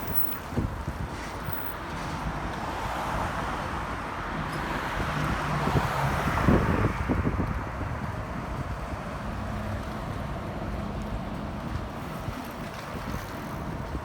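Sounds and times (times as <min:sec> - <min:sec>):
wind buffeting microphone: 0:00.0 - 0:02.5, 0:05.0 - 0:09.4
city street traffic: 0:00.0 - 0:14.0.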